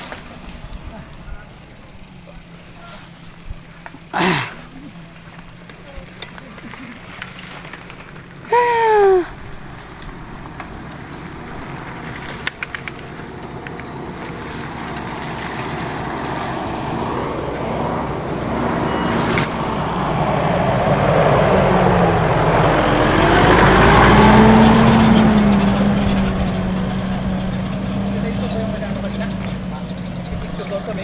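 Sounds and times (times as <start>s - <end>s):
vehicle engine approaching: 0.0s - 31.0s
wind and tyre noise: 0.0s - 31.0s
sharp clicks: 12.2s - 16.4s.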